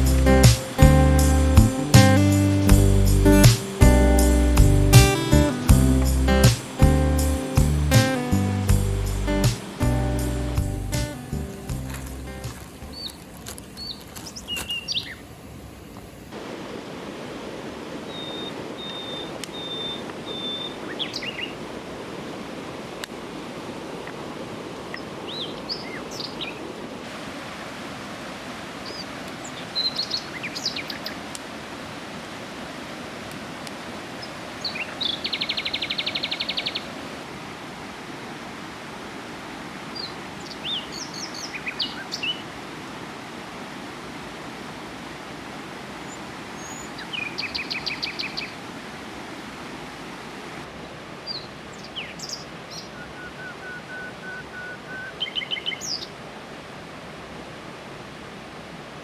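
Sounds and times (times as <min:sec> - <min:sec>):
birds chirping: 0:00.0 - 0:15.3, 0:18.1 - 0:21.6, 0:24.9 - 0:26.7, 0:34.2 - 0:36.9, 0:39.9 - 0:42.6, 0:46.0 - 0:48.6, 0:51.2 - 0:56.2
river flowing: 0:00.0 - 0:59.0.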